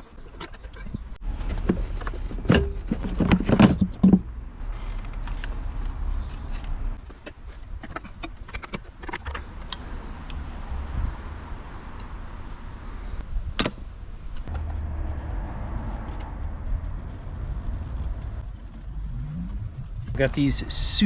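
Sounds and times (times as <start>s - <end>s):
metal car parts clanking: 0.0s - 4.3s, 6.3s - 9.7s.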